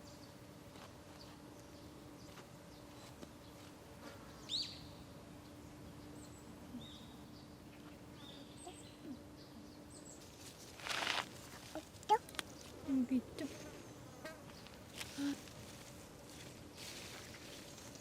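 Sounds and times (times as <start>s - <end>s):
birds chirping: 4.3s - 10.5s.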